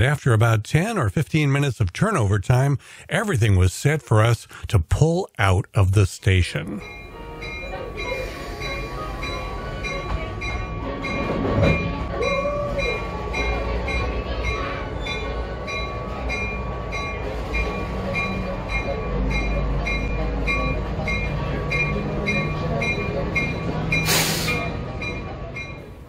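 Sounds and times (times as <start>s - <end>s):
train low rumble: 6.6s - 26.0s
bell ringing: 6.8s - 26.0s.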